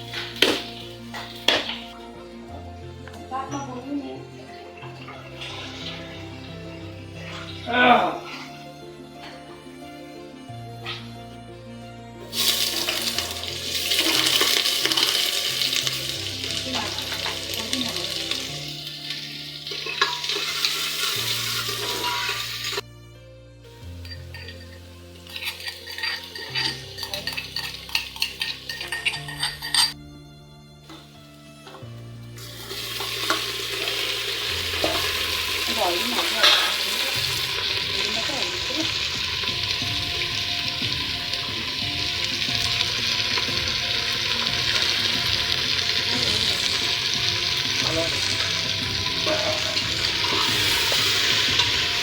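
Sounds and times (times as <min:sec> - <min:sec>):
food sizzling in a hot pan: 0:00.0 - 0:02.1, 0:04.2 - 0:07.7, 0:12.3 - 0:22.8, 0:23.8 - 0:29.8, 0:32.4 - 0:52.0
soft background music: 0:00.0 - 0:52.0
metal utensil scraping cookware: 0:19.7 - 0:22.8, 0:24.0 - 0:30.0, 0:33.0 - 0:39.2, 0:47.8 - 0:52.0.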